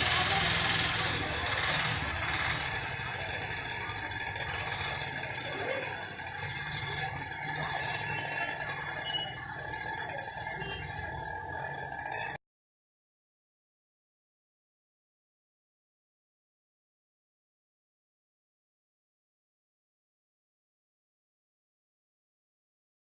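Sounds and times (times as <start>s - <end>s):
vehicle engine running: 0.0s - 12.4s.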